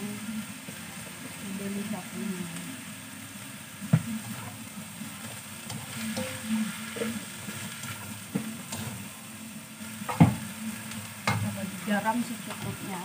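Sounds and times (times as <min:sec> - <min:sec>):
noodles sizzling in a frying pan: 0:00.0 - 0:13.0
spatula scraping and tapping pan: 0:10.0 - 0:11.5.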